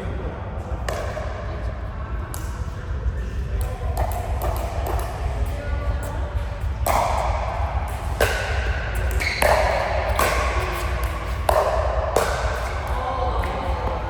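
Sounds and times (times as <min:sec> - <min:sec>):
low hum in large hall: 0:00.0 - 0:14.0
ball hitting rackets: 0:03.6 - 0:05.5, 0:06.8 - 0:14.0.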